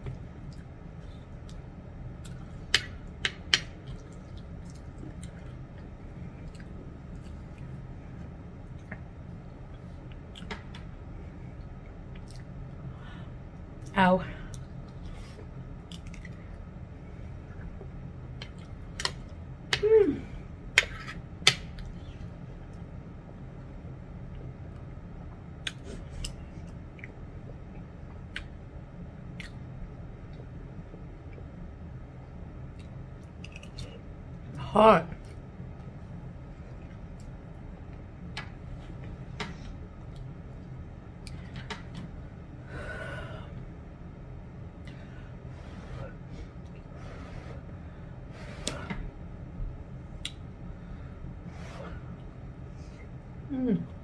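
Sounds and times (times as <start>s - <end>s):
low hum: 0.0s - 54.0s.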